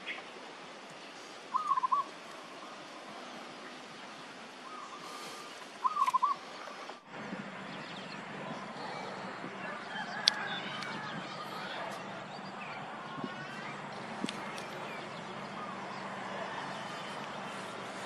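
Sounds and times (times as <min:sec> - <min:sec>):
background hiss: 0:00.0 - 0:18.0
faint bird chirps: 0:01.0 - 0:07.0
bird wavering call: 0:01.5 - 0:02.1, 0:04.6 - 0:06.6.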